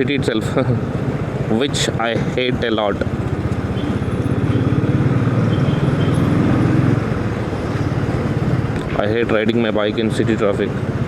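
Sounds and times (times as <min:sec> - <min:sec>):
motorcycle engine running: 0:02.7 - 0:08.9.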